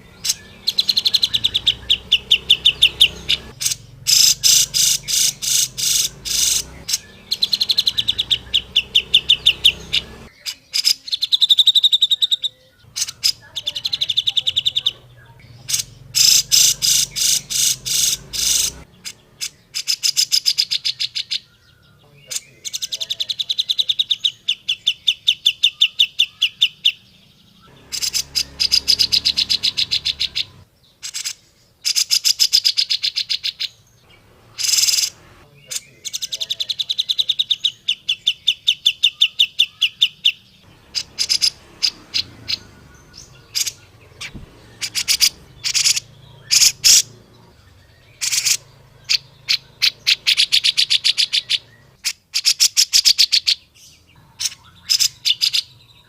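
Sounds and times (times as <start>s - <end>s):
bird chattering calls: 0.0s - 27.0s, 27.6s - 56.0s.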